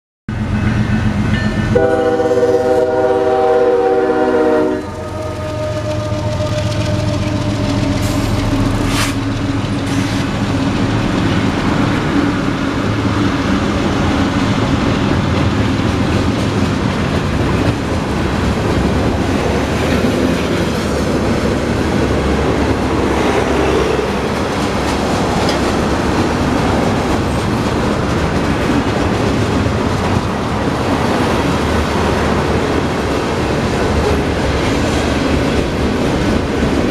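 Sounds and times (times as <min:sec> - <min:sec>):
train wheels rumbling on rails: 0:00.3 - 0:36.9
train air horn: 0:01.6 - 0:09.2, 0:23.3 - 0:24.3.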